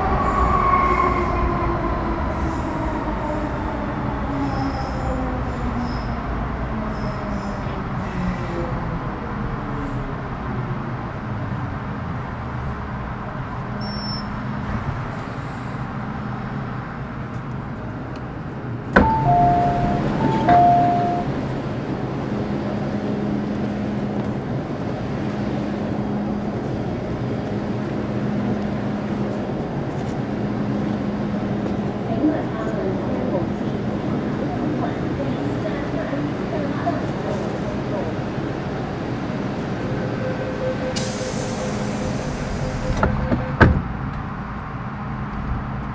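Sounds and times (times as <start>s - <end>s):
train equipment hum: 0.0s - 45.9s
two-note electronic chime: 19.0s - 21.3s.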